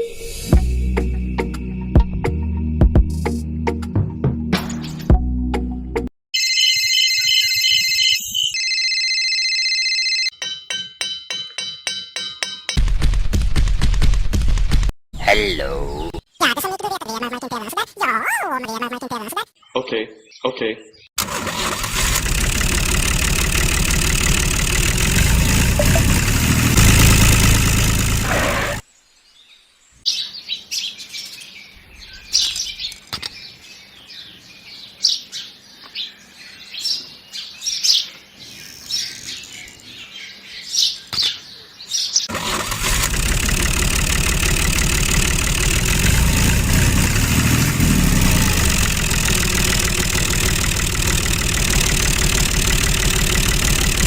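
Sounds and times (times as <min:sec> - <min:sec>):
birds chirping: 0:15.1 - 0:17.7, 0:18.6 - 0:21.2, 0:28.2 - 0:42.3
tractor engine running: 0:21.2 - 0:28.8, 0:42.3 - 0:54.0.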